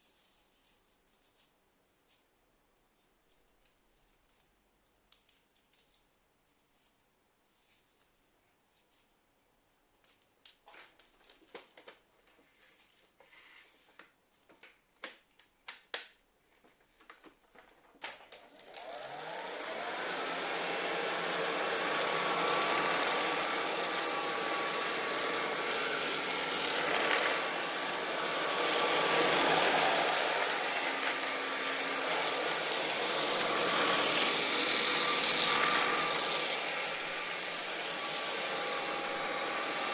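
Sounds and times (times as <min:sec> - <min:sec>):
cordless vacuum cleaner running: 0:18.2 - 0:39.9.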